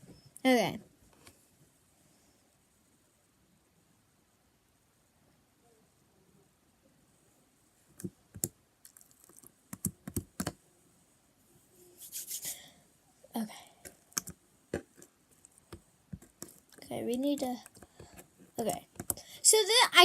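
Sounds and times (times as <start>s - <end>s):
objects clicking and tapping: 13.8s - 19.2s.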